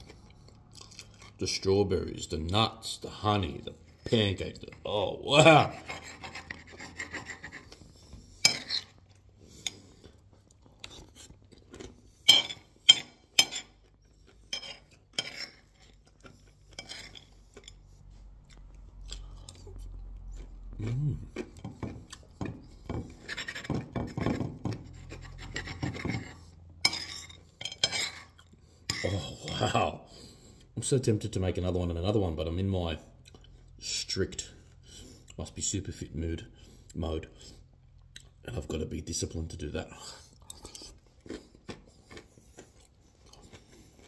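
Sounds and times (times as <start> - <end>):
man chewing: 0.0 - 1.4, 5.8 - 27.6, 28.2 - 29.5, 33.2 - 33.8, 36.6 - 38.4, 40.1 - 44.0.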